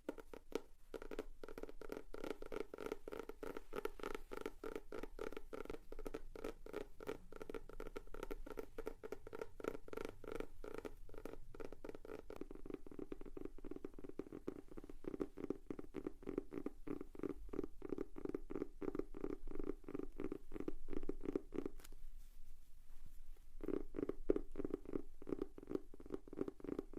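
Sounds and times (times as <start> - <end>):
fingers tapping on notebook: 0.0 - 18.9.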